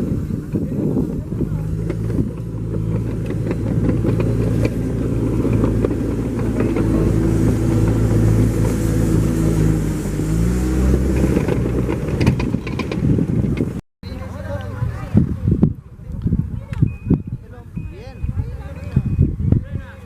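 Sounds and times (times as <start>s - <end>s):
car engine running: 0.0s - 15.3s
road noise: 0.0s - 20.0s.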